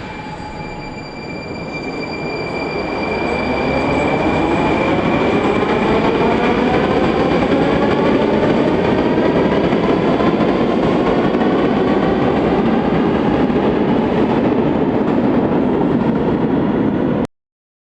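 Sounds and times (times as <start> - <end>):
thin multi-tone whine: 0.0 - 6.8
metro train rumbling: 0.0 - 17.2.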